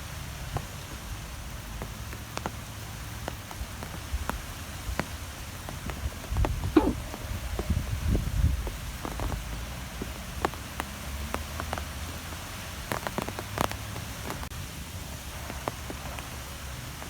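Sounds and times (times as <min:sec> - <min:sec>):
light ticks and taps: 0:01.6 - 0:07.0, 0:08.6 - 0:14.5.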